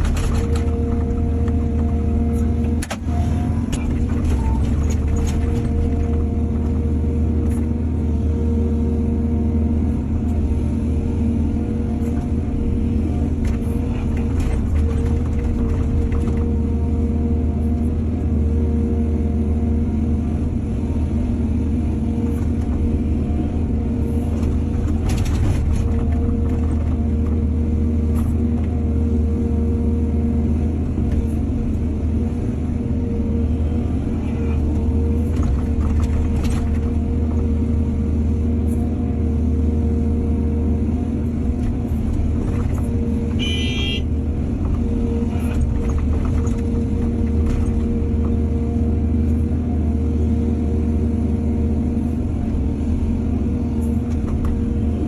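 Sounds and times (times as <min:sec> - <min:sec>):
diesel engine under load: 0:00.0 - 0:55.0.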